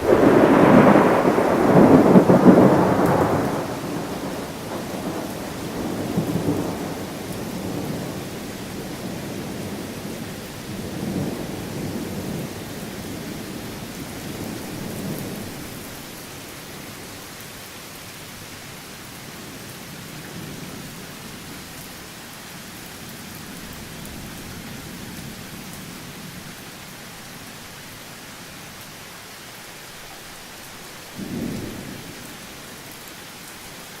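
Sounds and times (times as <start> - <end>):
thunder rumbling: 0.0 - 15.9
rain hiss: 0.0 - 34.0.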